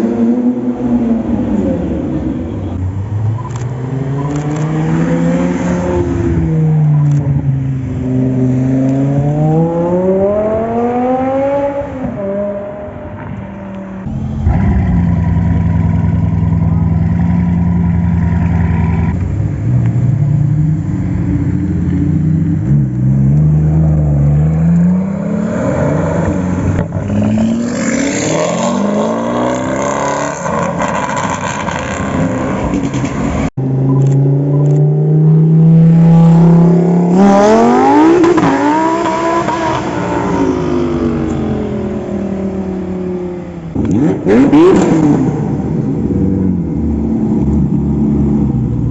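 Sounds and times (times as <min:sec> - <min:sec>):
sports car engine revving: 0:14.0 - 0:48.9.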